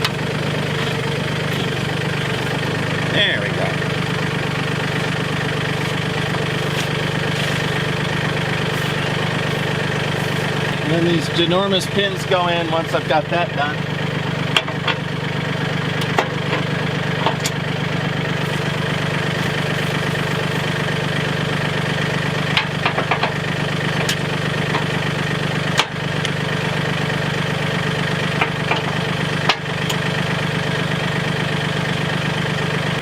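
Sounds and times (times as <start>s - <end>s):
diesel tractor engine idling: 0.0s - 33.0s
sharp clicks and knocks: 14.5s - 15.0s, 22.5s - 23.4s, 24.0s - 24.9s, 28.4s - 30.0s.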